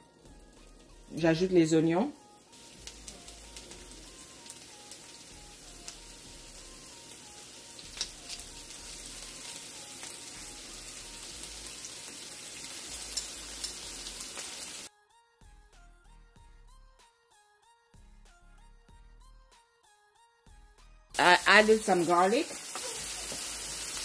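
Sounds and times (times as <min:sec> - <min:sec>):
onions sizzling in oil: 0:00.4 - 0:14.9, 0:21.2 - 0:24.0.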